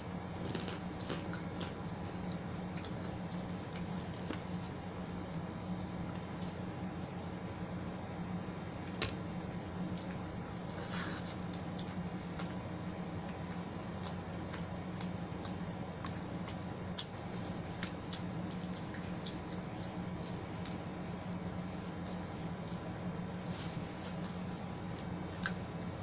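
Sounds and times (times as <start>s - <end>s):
wet chewing and mouth clicks: 0.3s - 7.8s, 9.8s - 23.0s.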